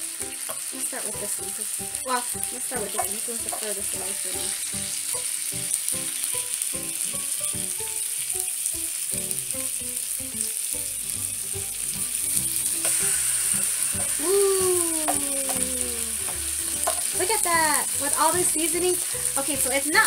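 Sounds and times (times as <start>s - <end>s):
fish sizzling in oil: 0.0s - 20.0s
person humming: 14.1s - 16.4s.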